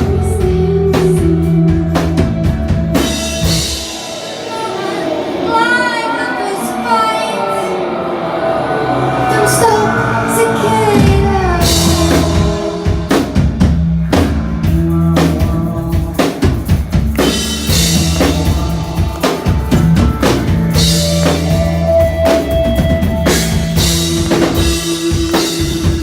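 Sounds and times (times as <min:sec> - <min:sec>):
loud drum kit: 0:00.0 - 0:05.7, 0:10.9 - 0:26.0
rock band playing: 0:00.0 - 0:08.0, 0:08.8 - 0:26.0.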